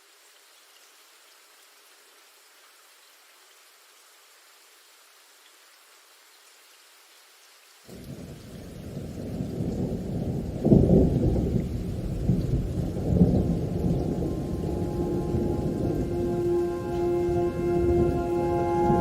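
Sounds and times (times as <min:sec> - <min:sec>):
thunder rumbling: 0:07.9 - 0:19.0.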